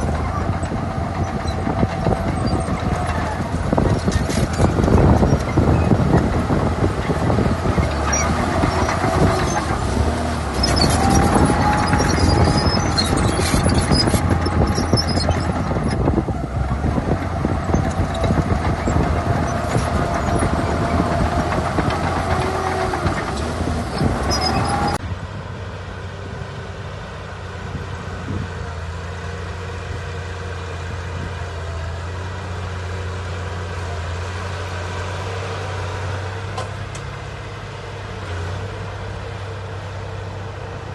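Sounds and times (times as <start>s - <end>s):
diesel engine under load: 0.0s - 40.9s
wavering metallic squeal: 7.8s - 15.7s.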